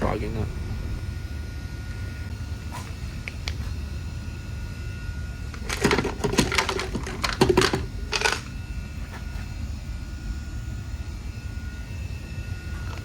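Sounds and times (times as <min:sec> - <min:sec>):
low rumble: 0:00.0 - 0:03.1
rattling clicks and clatters: 0:05.6 - 0:08.5.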